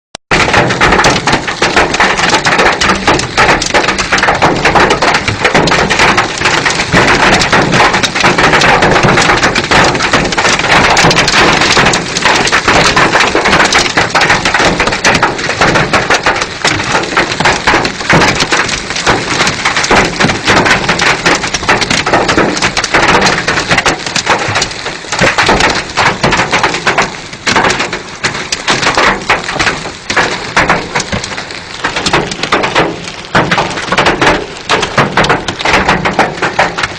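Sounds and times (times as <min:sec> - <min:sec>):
heavy rain pouring: 0:00.3 - 0:36.9
raindrops pattering on a surface: 0:00.3 - 0:36.9.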